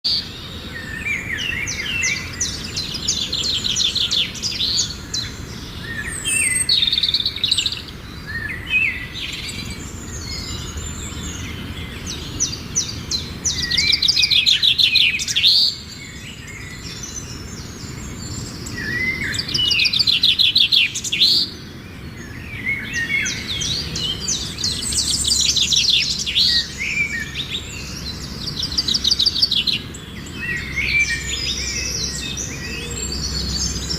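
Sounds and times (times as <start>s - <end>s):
songbirds trilling and chirping: 0.0s - 33.9s.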